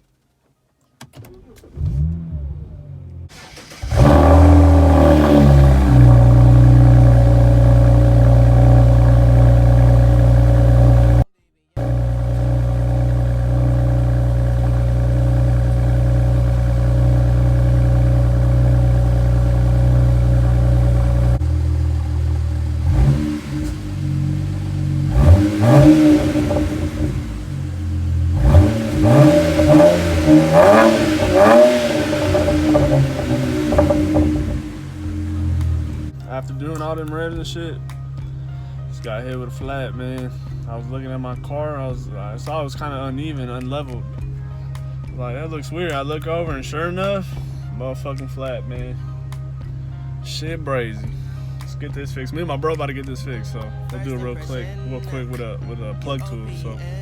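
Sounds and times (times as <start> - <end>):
car engine revving: 1.5 - 37.4.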